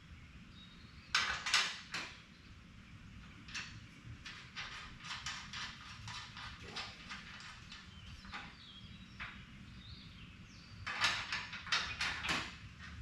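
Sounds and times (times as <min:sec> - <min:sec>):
hardware knocking and scraping: 0:03.4 - 0:08.6, 0:10.8 - 0:13.0.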